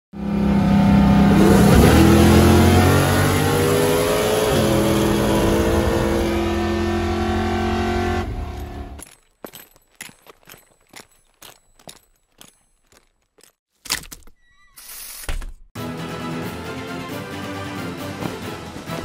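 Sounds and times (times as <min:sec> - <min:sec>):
car engine revving at full throttle: 0:00.1 - 0:09.0.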